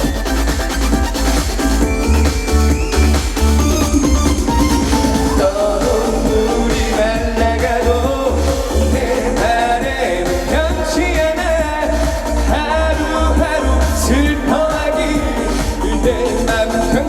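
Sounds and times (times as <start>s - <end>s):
band with pulsing bass beat: 0.0s - 17.0s
person singing: 4.9s - 17.0s.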